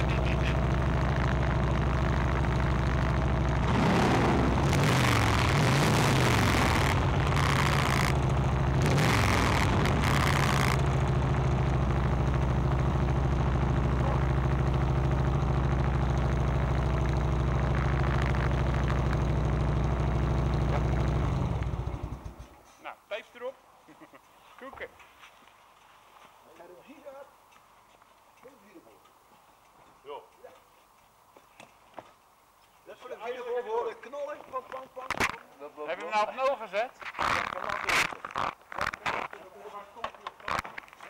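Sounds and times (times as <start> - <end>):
rushing noise: 0.0 - 15.2
motorcycle engine running: 0.0 - 22.6.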